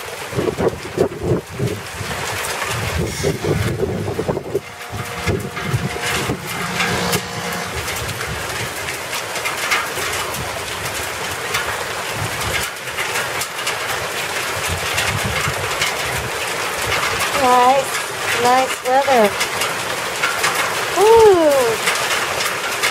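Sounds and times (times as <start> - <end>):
hail striking hard surfaces: 8.6 - 22.9.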